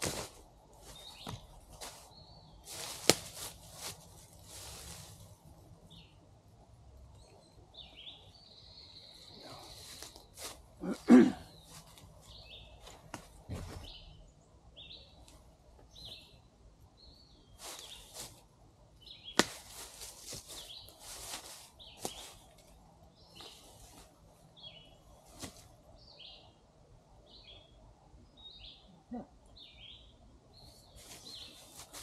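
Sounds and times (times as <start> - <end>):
rustling: 0.0 - 5.5, 19.4 - 24.2, 30.8 - 32.0.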